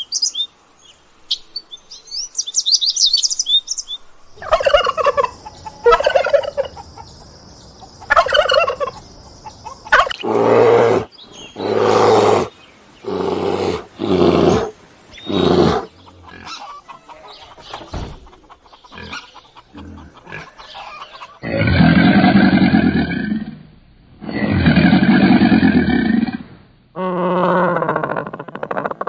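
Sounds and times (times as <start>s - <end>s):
animal calls: 4.4s - 7.2s, 8.0s - 23.5s
high-pitched animal call: 27.0s - 29.0s.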